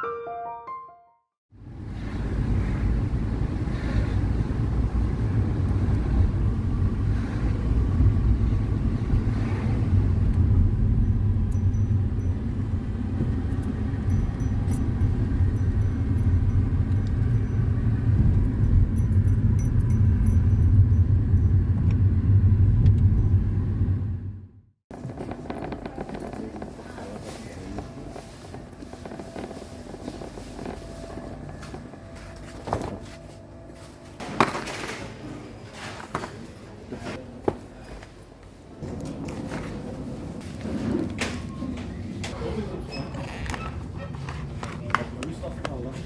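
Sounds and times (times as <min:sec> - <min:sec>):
car engine and road rumble: 0:01.6 - 0:33.0.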